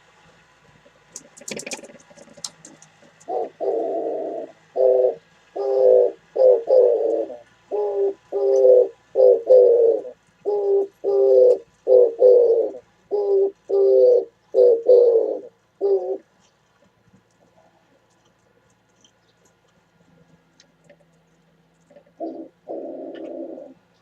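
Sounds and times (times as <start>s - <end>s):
dove cooing: 1.3s - 17.0s, 21.8s - 24.0s.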